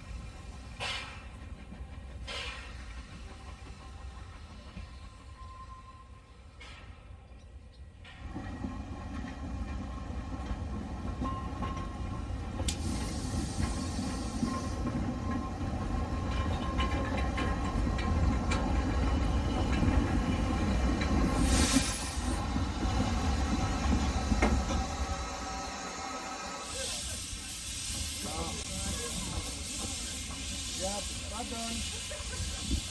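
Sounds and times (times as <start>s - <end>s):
train rumbling on rails: 0.0s - 32.9s.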